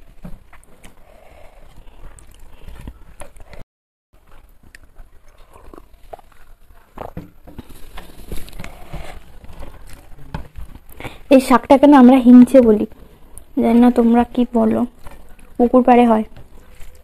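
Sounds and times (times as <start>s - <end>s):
chewing with mouth clicks: 4.2s - 7.2s.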